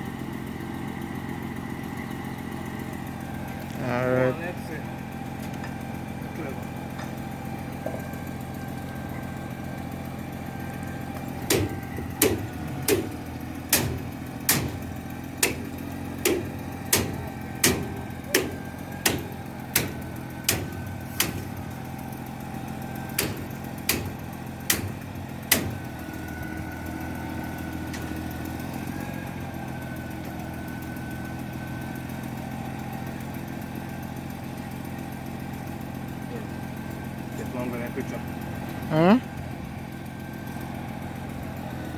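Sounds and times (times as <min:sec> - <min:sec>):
engine running: 0:00.0 - 0:41.9
sharp knocks: 0:11.4 - 0:21.6, 0:23.2 - 0:26.0.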